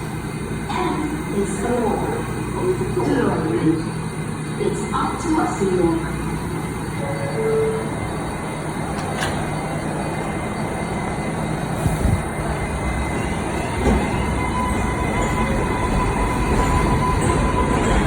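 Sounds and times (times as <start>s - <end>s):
subway train rumbling on track: 0.0s - 18.0s.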